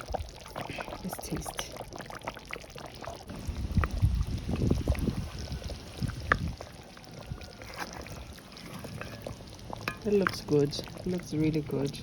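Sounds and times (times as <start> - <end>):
spoon scooping thick gravy: 6.2 - 11.0.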